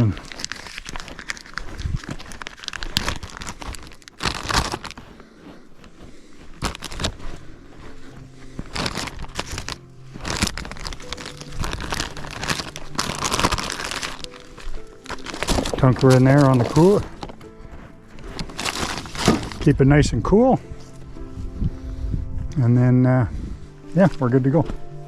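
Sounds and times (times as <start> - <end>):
plastic bag crinkling: 0.0 - 19.8.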